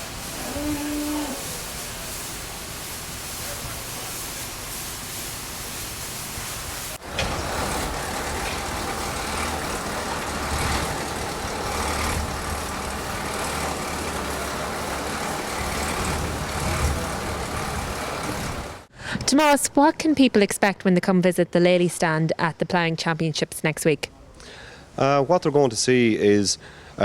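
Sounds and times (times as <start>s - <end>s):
outdoor background noise: 0.0s - 27.0s
engine rumbling: 7.0s - 18.9s.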